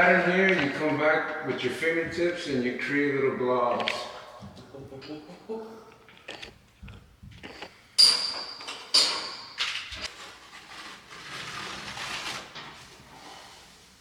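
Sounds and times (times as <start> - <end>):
sharp metallic clanks: 8.0 - 9.9.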